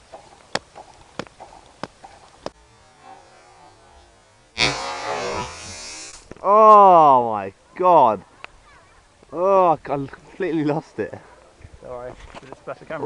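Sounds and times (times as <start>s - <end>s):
water rocket blasting off: 4.6s - 6.3s.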